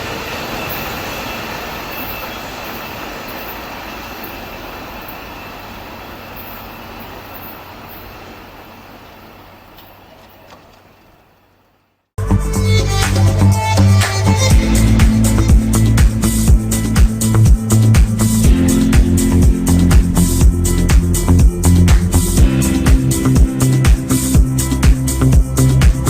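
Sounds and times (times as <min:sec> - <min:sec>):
train wheels rolling on rails: 0:00.0 - 0:12.1.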